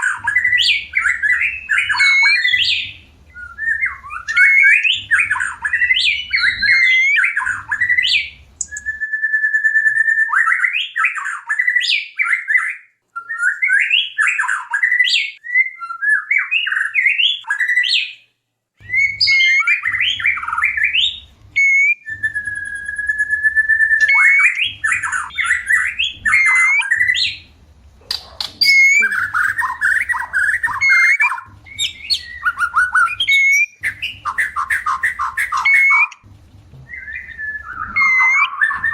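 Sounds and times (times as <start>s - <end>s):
bird singing loud varied song: 28.1s - 36.2s.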